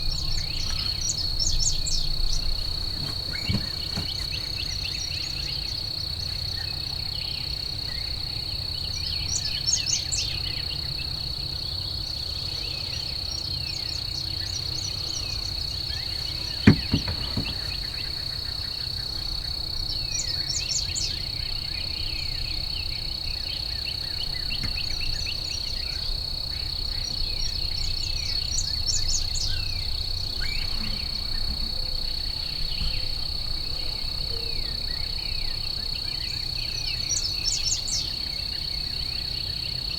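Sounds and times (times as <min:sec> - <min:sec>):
songbird chirps: 0:00.0 - 0:08.1, 0:12.3 - 0:19.3
sharp knocks: 0:16.6 - 0:17.9.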